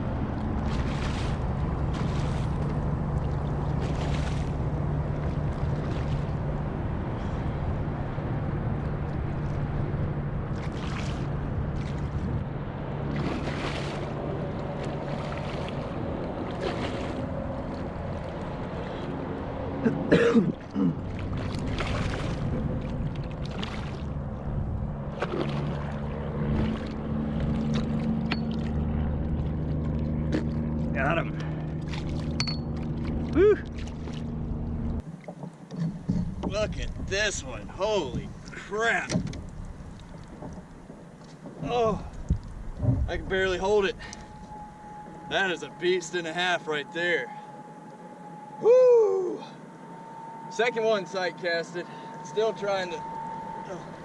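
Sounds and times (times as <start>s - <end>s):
water rushing against kayak hull: 0.0s - 8.0s, 8.6s - 19.8s, 20.5s - 46.0s
low motor drone: 0.0s - 35.0s, 36.0s - 54.0s
wind noise on microphone: 39.1s - 43.3s.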